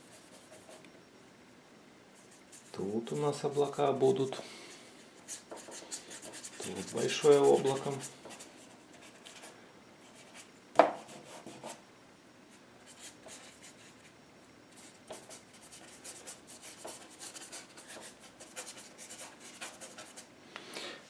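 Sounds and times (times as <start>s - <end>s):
paintbrush scrubbing on canvas: 5.2s - 8.2s.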